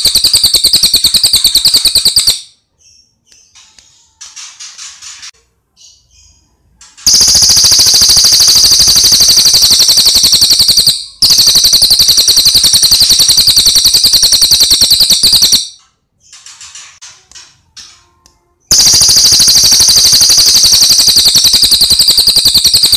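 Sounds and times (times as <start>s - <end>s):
bird chirping and trilling: 0.0s - 5.2s, 7.1s - 16.8s, 18.7s - 22.9s.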